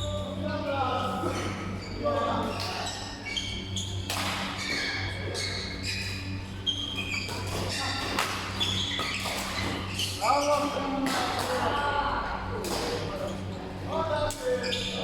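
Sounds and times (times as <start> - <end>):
steady low hum: 0.0 - 15.0
sneakers squeaking on court: 1.4 - 10.8, 14.4 - 15.0.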